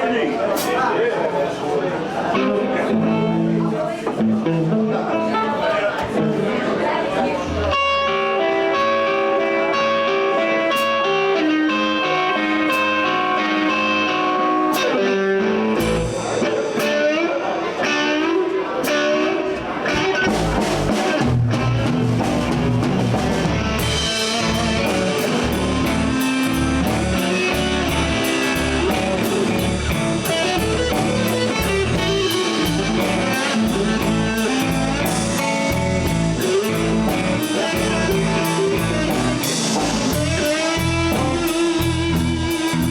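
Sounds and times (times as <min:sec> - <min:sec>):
electric guitar lead lines: 0:02.3 - 0:42.9
bass and drums: 0:12.6 - 0:17.2, 0:19.9 - 0:42.9.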